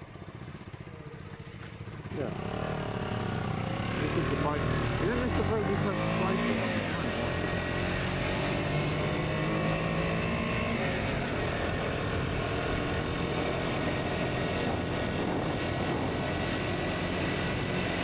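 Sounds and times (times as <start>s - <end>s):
motorcycle engine running: 0.0s - 18.0s
rushing wind: 6.6s - 18.0s.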